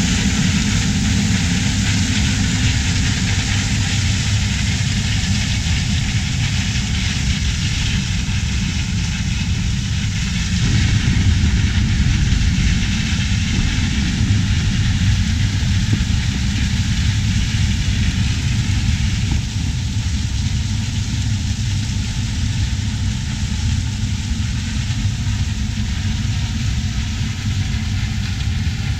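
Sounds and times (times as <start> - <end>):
diesel engine running: 0.0 - 20.7.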